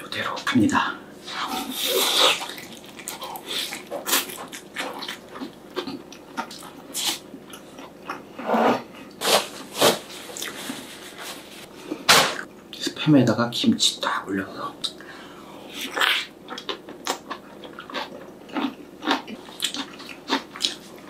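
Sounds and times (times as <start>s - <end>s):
chewing with mouth clicks: 2.1s - 8.2s, 15.8s - 21.0s.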